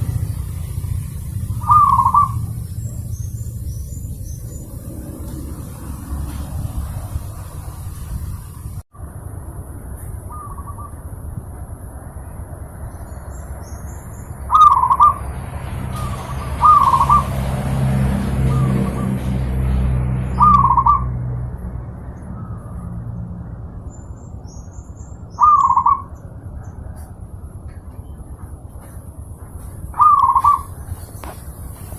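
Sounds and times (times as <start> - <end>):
small birds chirping: 0.0 - 8.8, 10.0 - 11.2, 12.2 - 17.4, 20.3 - 21.1, 22.2 - 31.9
dove cooing: 1.4 - 2.6, 14.5 - 15.2, 16.0 - 17.3, 25.4 - 26.1, 29.9 - 30.8.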